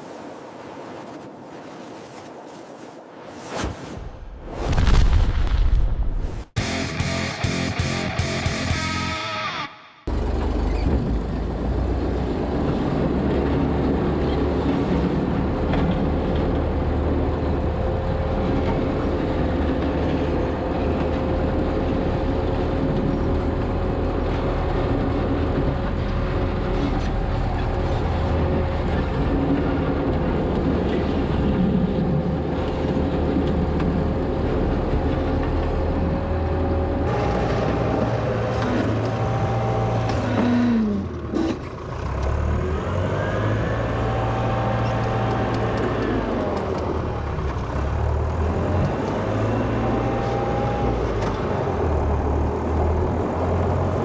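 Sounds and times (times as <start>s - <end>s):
wheel loader engine running: 6.6s - 9.2s, 10.1s - 54.0s
steady whine: 6.6s - 10.1s.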